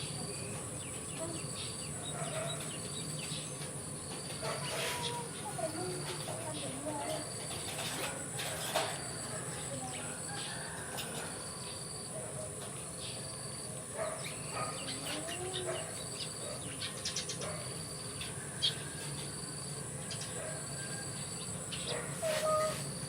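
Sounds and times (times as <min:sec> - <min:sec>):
animal chirps and squeaks: 0:00.9 - 0:03.6, 0:04.4 - 0:05.6, 0:21.8 - 0:23.0.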